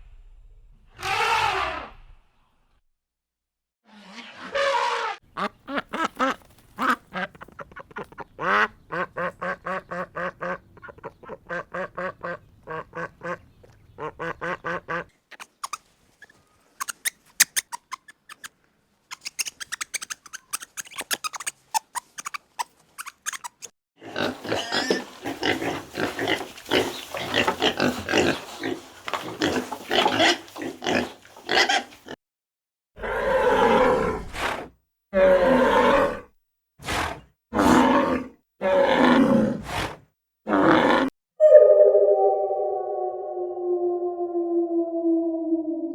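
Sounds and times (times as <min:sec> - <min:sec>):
ducks quacking: 0:05.3 - 0:15.5.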